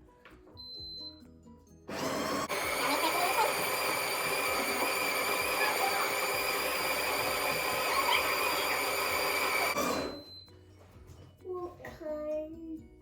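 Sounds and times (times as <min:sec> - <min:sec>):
coffee grinder motor whine: 0:01.9 - 0:10.4.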